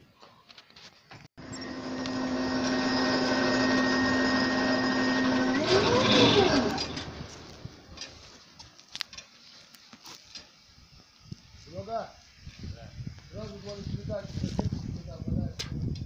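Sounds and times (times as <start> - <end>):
electric motor humming: 1.4 - 8.0.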